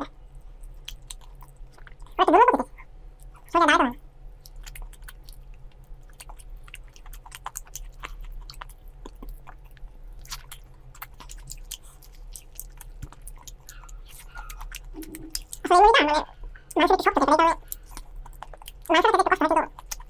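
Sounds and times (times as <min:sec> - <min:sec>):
person chewing food: 0:00.4 - 0:03.6, 0:04.2 - 0:20.0
low hum: 0:08.1 - 0:18.4.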